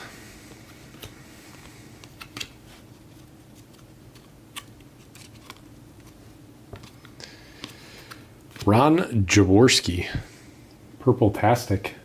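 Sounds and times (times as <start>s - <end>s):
low steady hum: 0.0s - 12.0s
cards clicking and sliding: 0.6s - 8.8s.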